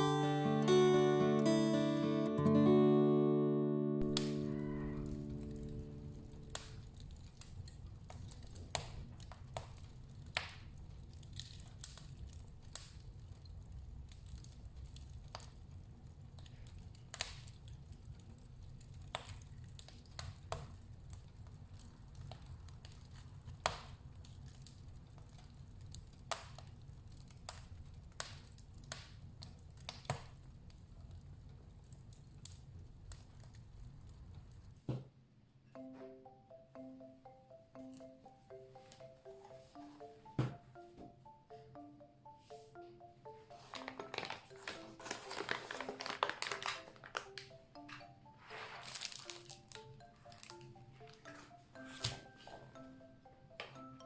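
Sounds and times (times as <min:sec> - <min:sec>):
wood fire crackling and popping: 0:05.2 - 0:34.9, 0:43.8 - 0:47.5, 0:48.8 - 0:51.2
low fire rumble: 0:05.6 - 0:34.8.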